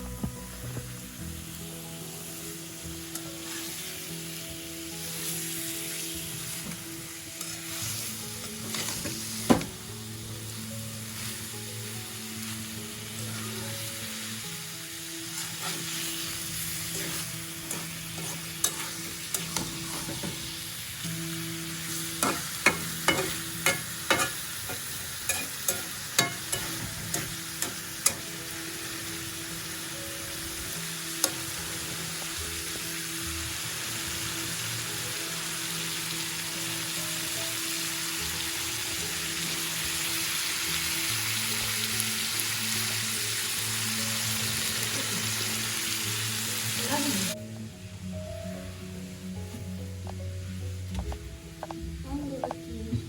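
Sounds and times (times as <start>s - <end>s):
food sizzling in a pan: 0.0s - 52.8s
spatula clinking against pan: 22.2s - 28.2s.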